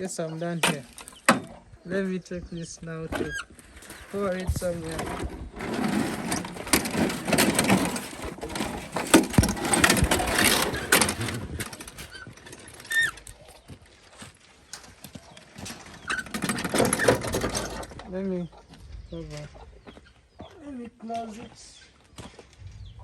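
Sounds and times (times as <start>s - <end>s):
litter rustling and scraping: 2.9s - 20.2s.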